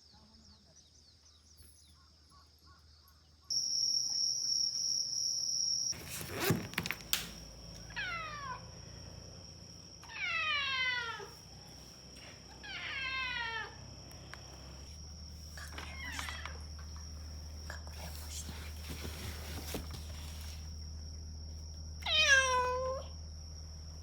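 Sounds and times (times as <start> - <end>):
cat meowing: 7.9 - 8.7, 10.0 - 11.4, 12.6 - 13.8, 15.7 - 16.6, 22.0 - 23.1.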